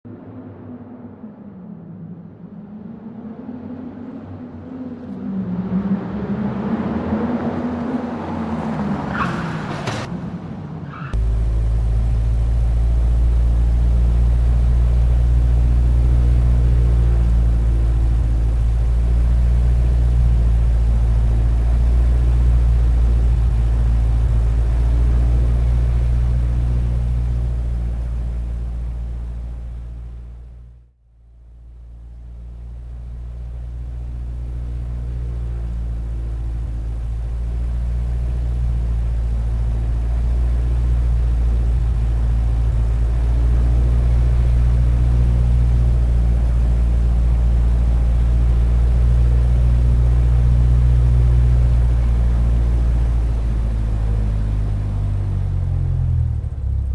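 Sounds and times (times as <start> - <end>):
low engine rumble: 0.1 - 56.9
engine revving: 11.1 - 29.9, 33.8 - 56.7.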